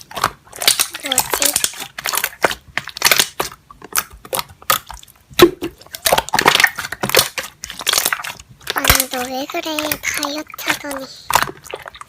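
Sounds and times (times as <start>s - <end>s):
slime squeezed crackling: 0.0s - 12.0s.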